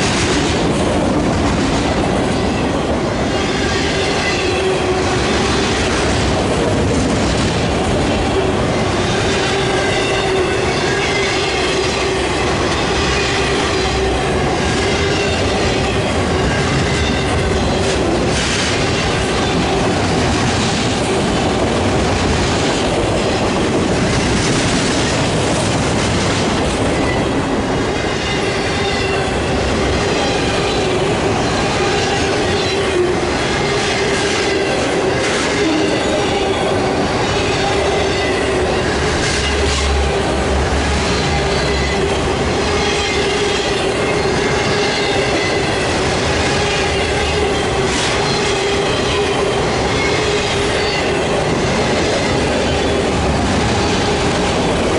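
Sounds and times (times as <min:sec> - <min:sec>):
train wheels clacking on rails: 0:00.0 - 0:54.9
high wheel squeal: 0:41.0 - 0:53.1.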